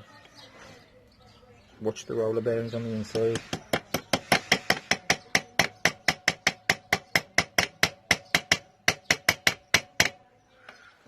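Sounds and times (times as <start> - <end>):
hammer tapping metal: 3.3 - 10.2.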